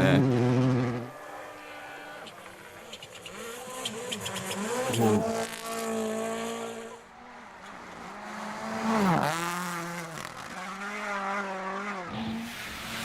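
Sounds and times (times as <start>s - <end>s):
rally car engine at high revs: 0.0s - 13.0s.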